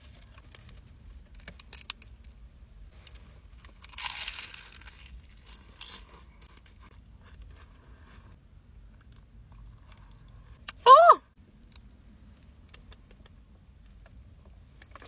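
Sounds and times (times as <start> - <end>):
crunching food bites: 3.6 - 6.9.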